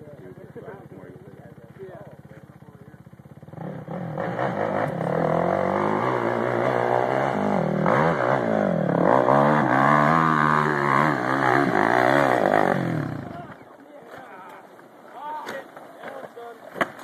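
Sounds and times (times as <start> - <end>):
quad engine revving hard: 3.5 - 13.6.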